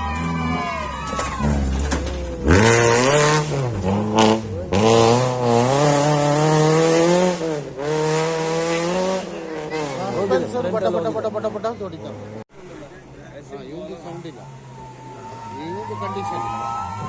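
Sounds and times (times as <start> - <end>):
rally car engine revving past: 1.4 - 10.2.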